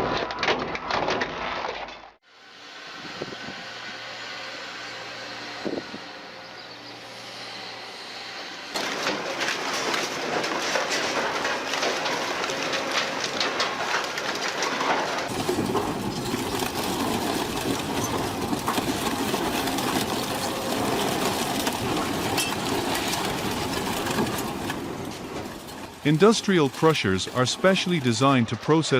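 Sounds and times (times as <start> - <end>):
heavy machinery clattering: 8.4 - 28.9.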